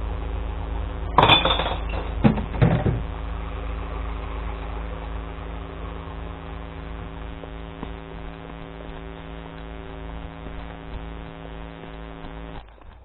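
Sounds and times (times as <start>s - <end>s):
clunks and rattles: 1.8s - 3.1s
truck engine idling: 2.0s - 7.1s.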